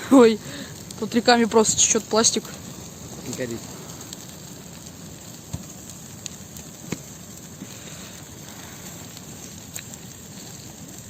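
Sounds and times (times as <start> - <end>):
bonfire burning: 0.0 - 11.0
wood crackling pops: 0.0 - 11.0.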